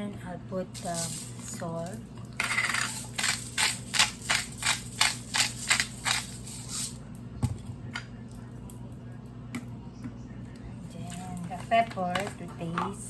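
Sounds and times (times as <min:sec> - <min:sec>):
salt shaker rattling: 0:00.7 - 0:07.0.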